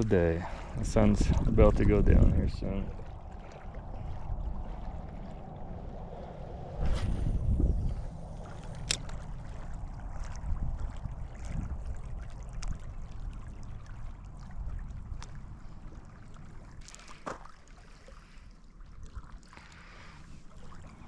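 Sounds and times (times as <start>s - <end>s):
wind rumbling on microphone: 0.0s - 16.8s
water lapping at shore: 0.0s - 21.0s.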